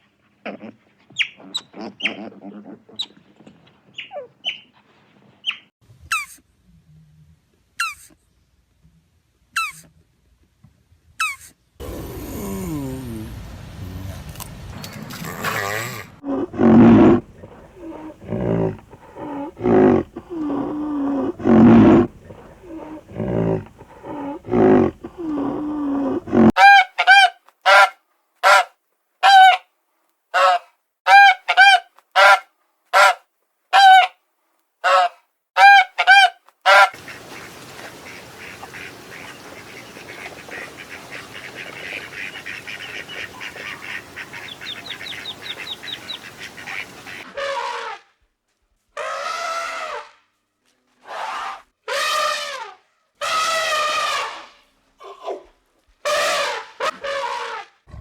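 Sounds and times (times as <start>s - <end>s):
wavering animal calls: 0.5s - 3.2s, 15.3s - 26.6s, 38.0s - 47.7s
waterfowl honking: 34.8s - 47.6s.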